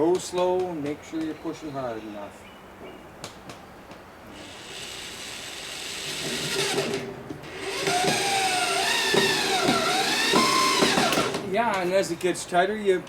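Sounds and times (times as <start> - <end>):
power drill into sheet metal: 4.4 - 11.5.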